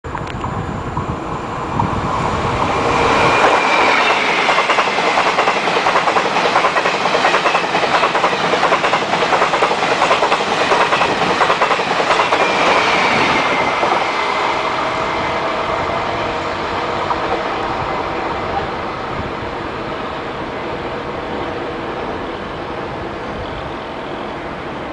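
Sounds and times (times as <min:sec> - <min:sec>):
train wheels clattering over rail joints: 0:03.3 - 0:14.1.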